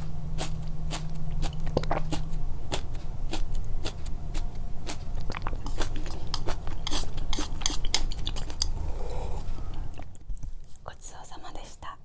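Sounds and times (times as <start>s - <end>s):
steady low hum: 0.0s - 12.0s
chewing mouth clicks and smacks: 0.4s - 8.8s.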